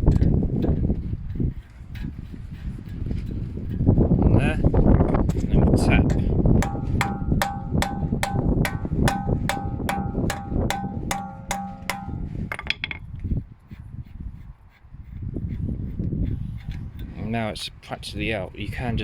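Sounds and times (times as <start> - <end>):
hammer striking metal nut: 5.8 - 13.0.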